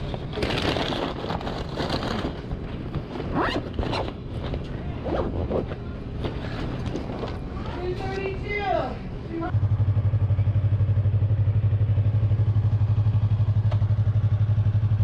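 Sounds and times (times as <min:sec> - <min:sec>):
motorcycle engine revving: 0:09.5 - 0:15.0.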